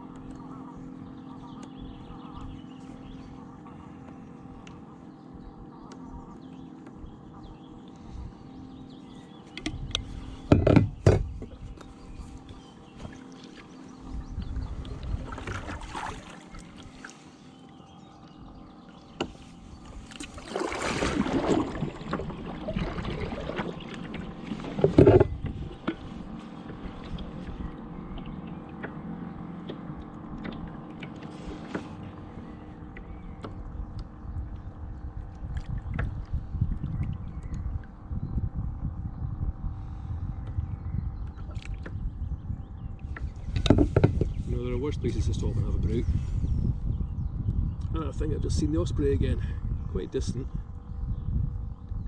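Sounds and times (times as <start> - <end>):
wind rumble on microphone: 0.0 - 52.0
paddle splashing in water: 14.7 - 17.2, 19.2 - 27.5.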